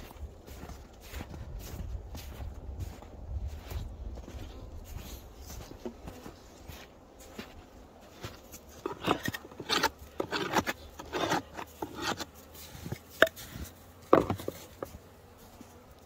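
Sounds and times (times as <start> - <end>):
knocks and scrapes on wood: 8.8 - 15.0.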